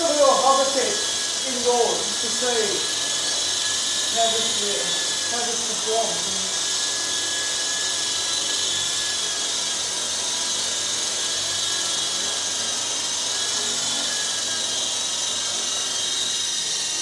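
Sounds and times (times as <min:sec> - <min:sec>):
toy helicopter motor whine: 0:00.0 - 0:17.0.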